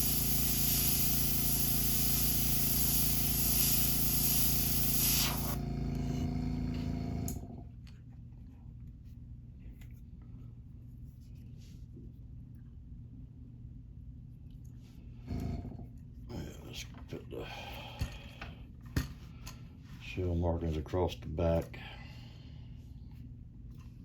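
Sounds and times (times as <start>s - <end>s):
airbrush spraying hiss: 0.0s - 5.6s
air compressor humming: 0.0s - 7.6s.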